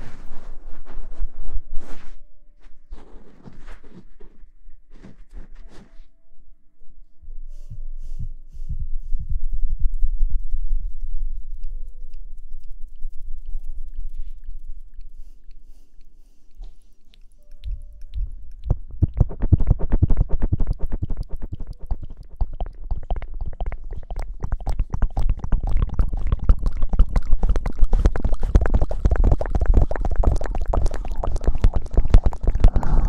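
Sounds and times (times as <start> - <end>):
asmr crackling and scratching: 10.3 - 33.0.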